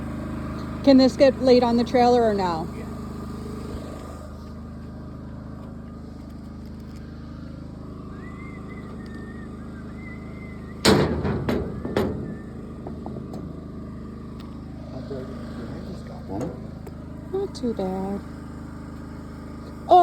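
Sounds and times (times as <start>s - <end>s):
engine idling: 0.0s - 20.0s
loud bangs: 10.8s - 13.6s.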